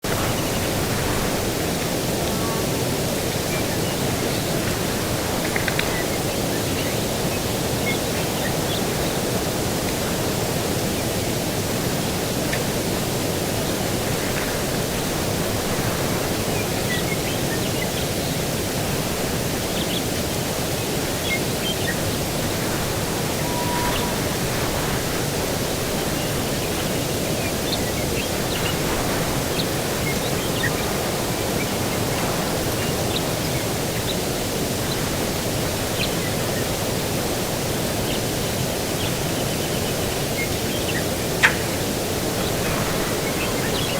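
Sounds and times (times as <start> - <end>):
distant ocean surf: 0.1 - 39.9, 40.6 - 43.9
breeze rushing: 20.4 - 33.5
faint bird chirps: 22.6 - 25.2.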